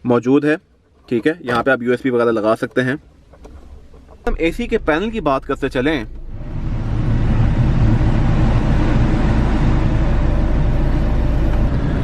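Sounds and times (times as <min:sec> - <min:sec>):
car engine idling: 0:02.6 - 0:12.0
blower fan rushing air: 0:04.4 - 0:12.0.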